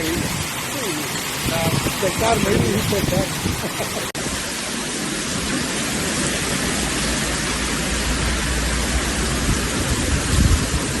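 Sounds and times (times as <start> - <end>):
wind rushing: 0.0 - 4.6
rain: 0.0 - 11.0.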